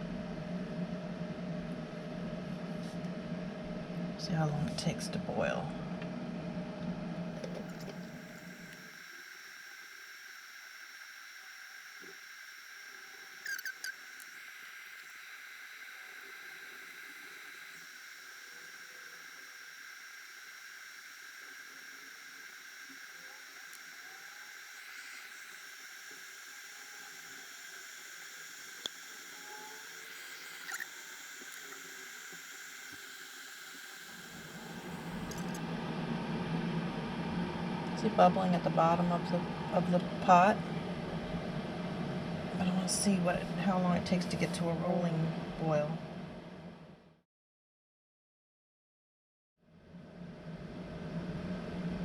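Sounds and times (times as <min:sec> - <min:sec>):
kettle hiss and high whine: 0:00.0 - 0:47.2, 0:49.7 - 0:52.0
small squeaks: 0:13.0 - 0:15.2, 0:28.3 - 0:33.1.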